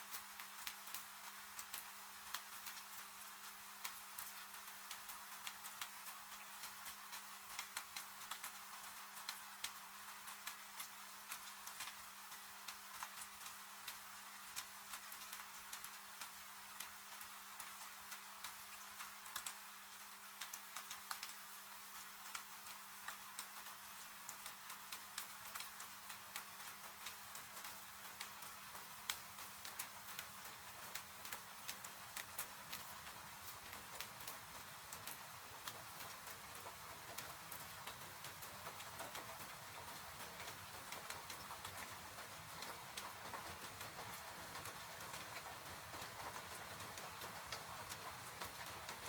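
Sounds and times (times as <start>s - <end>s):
rain hissing: 21.9s - 49.0s.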